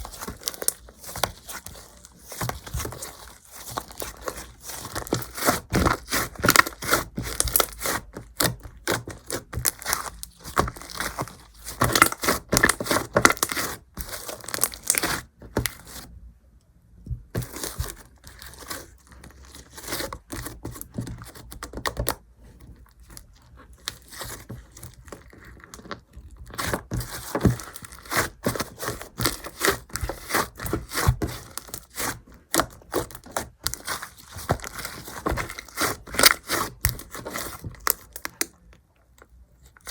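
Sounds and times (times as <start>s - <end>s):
slime squished by hand: 0.0s - 16.0s.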